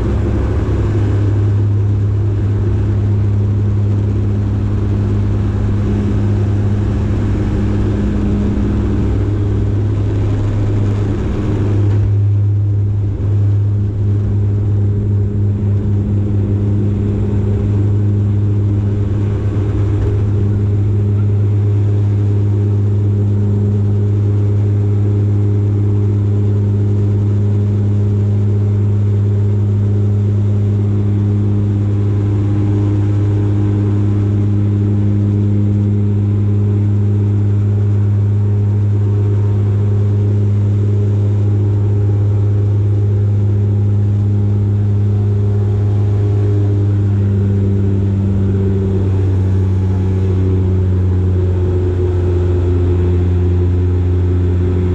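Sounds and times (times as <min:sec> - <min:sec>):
turboprop engine droning: 0:00.0 - 0:54.9.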